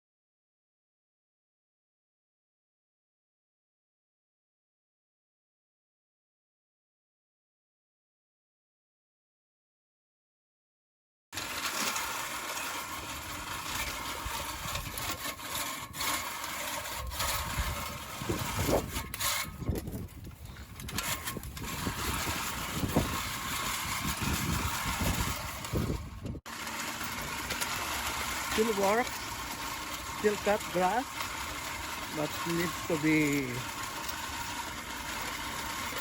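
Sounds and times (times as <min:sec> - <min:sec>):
push reel lawnmower whirring: 0:11.4 - 0:36.0.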